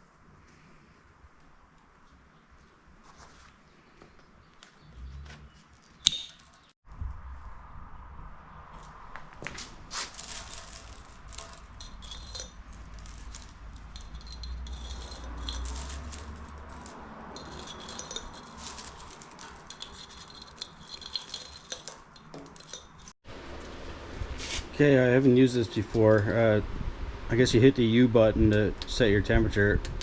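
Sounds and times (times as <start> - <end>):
small metal objects clinking: 5.6 - 6.8, 9.9 - 23.2.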